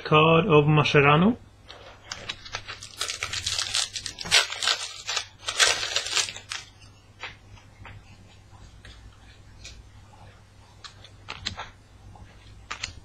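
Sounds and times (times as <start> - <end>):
card pack wrapper tearing and crinkling: 1.7 - 6.7
cards being handled: 1.7 - 7.4.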